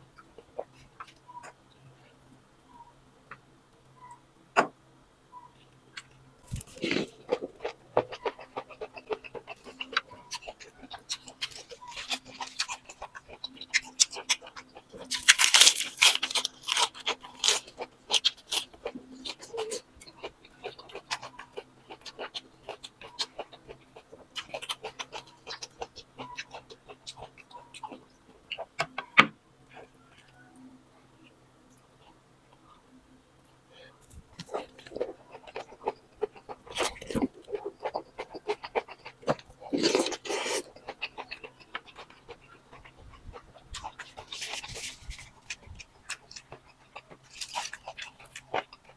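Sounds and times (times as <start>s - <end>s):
person chewing crunchy food: 6.0s - 29.1s, 34.0s - 48.9s.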